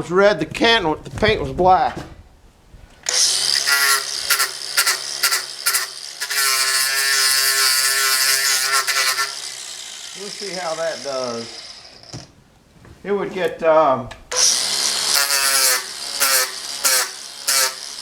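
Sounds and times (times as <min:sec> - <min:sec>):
power drill motor running: 0:03.0 - 0:12.4, 0:14.3 - 0:18.0.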